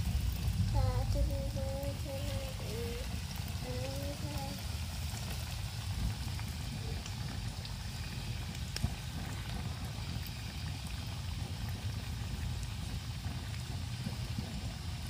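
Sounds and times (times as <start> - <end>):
low rumble: 0.0 - 10.2
food sizzling in oil: 0.0 - 15.0.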